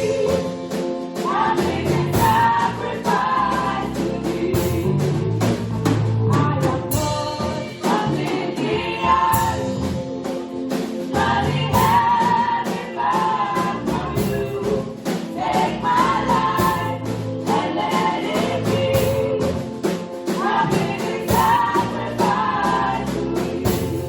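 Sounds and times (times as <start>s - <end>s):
band accompaniment: 0.0s - 24.0s
choir singing gospel: 0.0s - 24.0s
drum beats: 0.0s - 24.0s
bass line: 1.3s - 8.2s, 8.8s - 10.2s, 11.1s - 12.4s, 13.6s - 17.6s.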